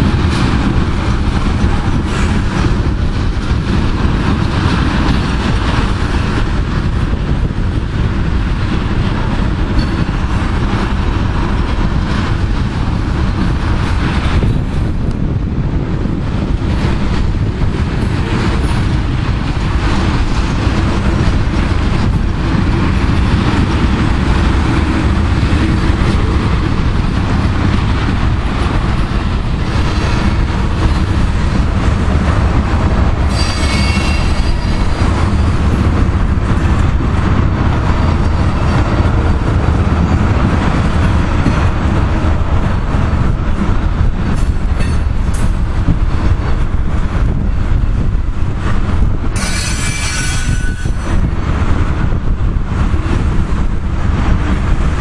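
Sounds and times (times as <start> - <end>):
freight train wheels rumbling on rail: 0.0 - 55.0
high wheel squeal: 33.3 - 35.0, 49.4 - 51.2.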